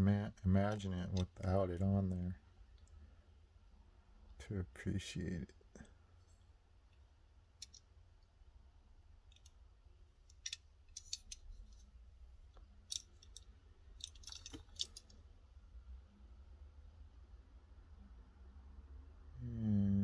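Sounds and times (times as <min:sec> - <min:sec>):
toy car clicking when handled: 0:09.3 - 0:09.6, 0:10.3 - 0:11.8, 0:12.9 - 0:15.2.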